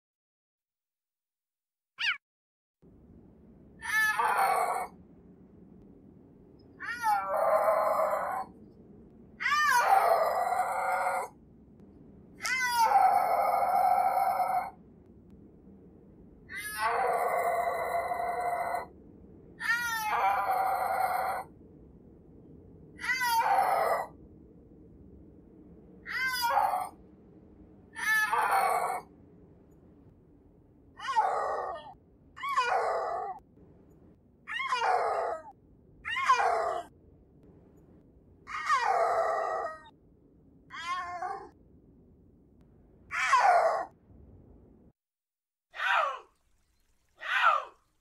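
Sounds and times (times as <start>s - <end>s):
faint steady hiss: 46.2s - 48.0s.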